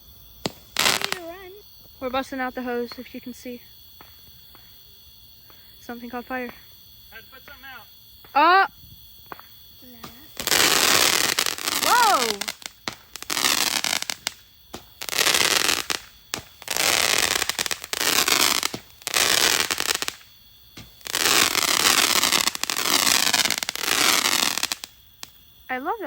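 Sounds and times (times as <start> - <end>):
fireworks crackling bursts: 0.0 - 25.7.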